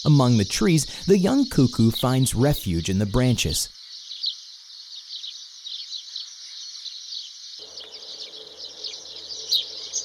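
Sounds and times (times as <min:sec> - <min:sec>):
high bird chirps: 0:00.0 - 0:10.0
insect trill: 0:00.0 - 0:10.0.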